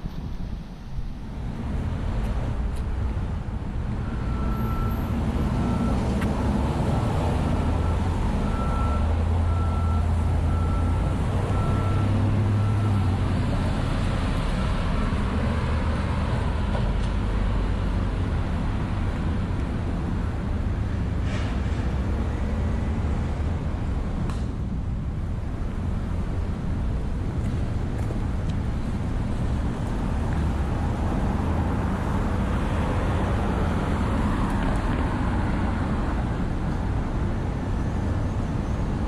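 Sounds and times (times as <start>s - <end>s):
heavy vehicle engine rumbling: 0.0s - 39.0s
street noise: 0.0s - 39.0s
wind: 0.0s - 39.0s
reversing alarm beeping: 4.0s - 6.0s, 7.8s - 13.1s.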